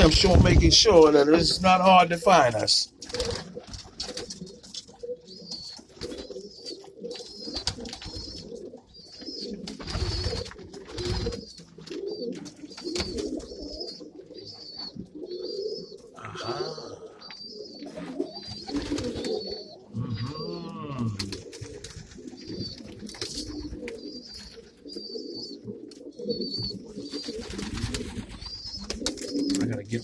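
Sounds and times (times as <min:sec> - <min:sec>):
pigeons cooing: 0:00.0 - 0:30.0.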